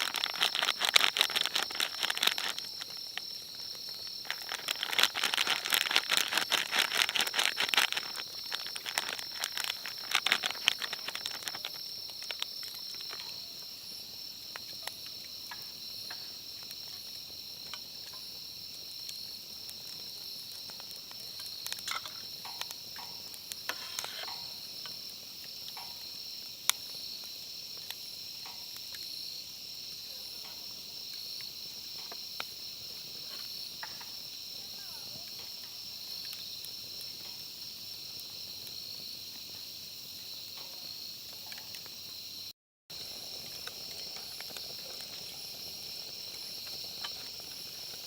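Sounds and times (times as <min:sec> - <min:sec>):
sharp clicks and crackles: 0:00.0 - 0:13.4, 0:20.6 - 0:25.0
insect chorus chirring: 0:00.0 - 0:48.0.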